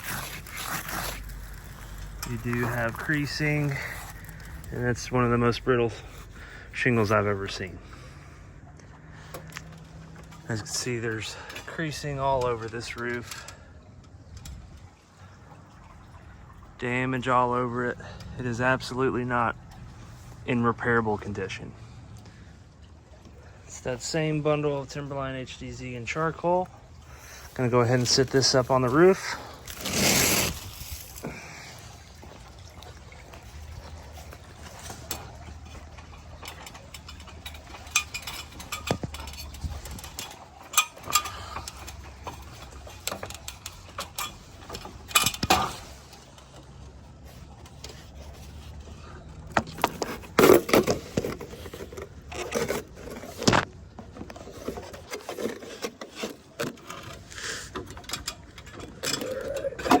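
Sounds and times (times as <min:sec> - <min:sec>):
shingles scraping and knocking: 0:00.0 - 0:07.3, 0:27.2 - 0:31.5, 0:49.4 - 1:00.0.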